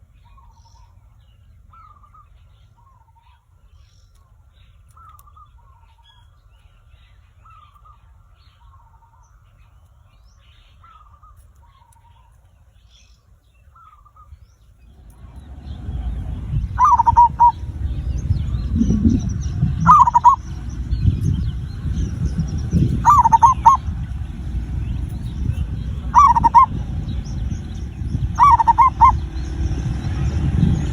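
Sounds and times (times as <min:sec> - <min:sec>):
small bird chirping: 0:04.0 - 0:30.9
loud low rumble: 0:14.9 - 0:30.9
dove cooing: 0:15.1 - 0:29.5.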